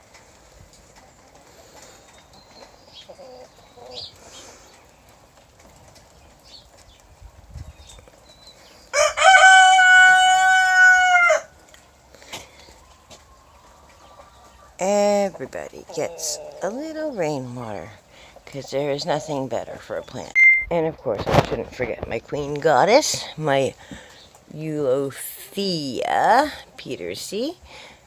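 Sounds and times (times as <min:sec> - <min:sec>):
loud drawn-out crowing call: 0:08.9 - 0:11.6.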